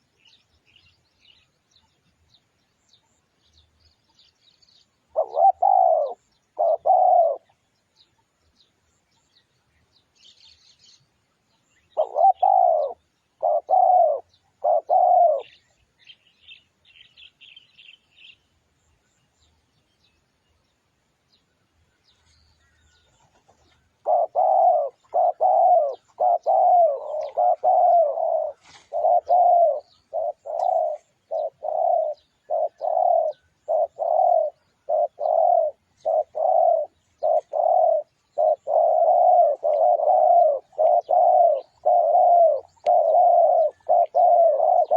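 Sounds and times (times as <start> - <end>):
faint high bird chirps: 0.0 - 44.9
dove cooing: 5.1 - 7.6, 11.9 - 15.8, 23.2 - 44.9.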